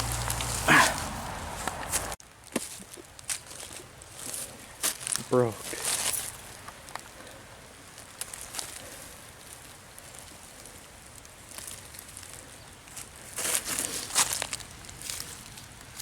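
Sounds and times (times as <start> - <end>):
leaf litter crackling and rustling: 0.0 - 16.0
steady low hiss: 0.0 - 16.0.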